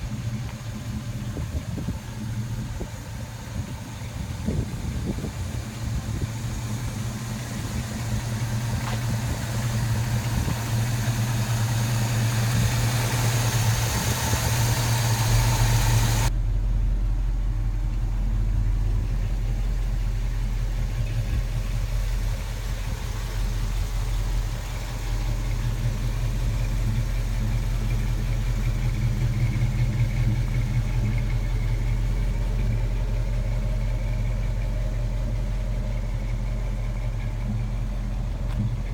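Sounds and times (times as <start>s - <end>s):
engine running through exhaust: 0.0s - 38.9s
hiss: 7.8s - 16.3s.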